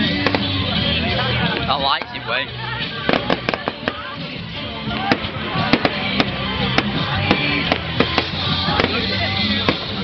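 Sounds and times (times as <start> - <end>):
fireworks bangs and crackles: 0.0 - 10.0
music playing: 0.0 - 10.0.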